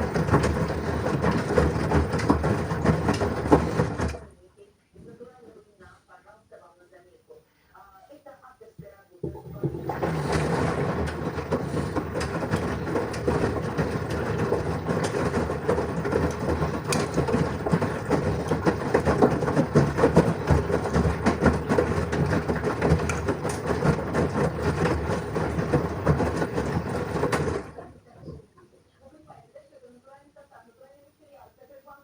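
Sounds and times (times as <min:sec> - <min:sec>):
washing machine drum churning: 0:00.0 - 0:04.4, 0:09.2 - 0:28.5.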